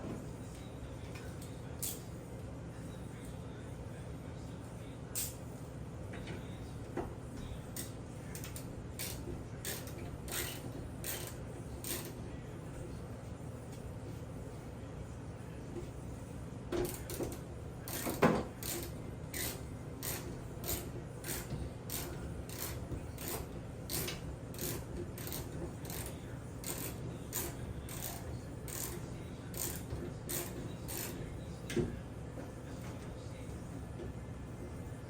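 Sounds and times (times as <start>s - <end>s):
steady low hum: 0.0s - 35.0s
ratchet tool clicking: 8.4s - 12.1s, 17.9s - 29.0s, 29.6s - 31.2s.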